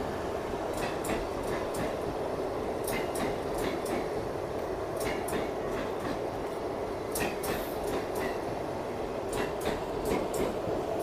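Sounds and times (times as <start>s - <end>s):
train wheels rumbling on track: 0.0s - 11.0s
wheels clicking over rail joints: 0.7s - 2.2s, 2.8s - 8.6s, 9.3s - 10.7s.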